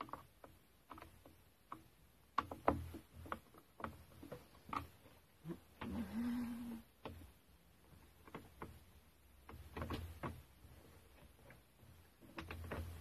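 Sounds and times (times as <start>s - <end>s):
light clicks and knocks: 0.0s - 6.0s, 6.9s - 13.0s.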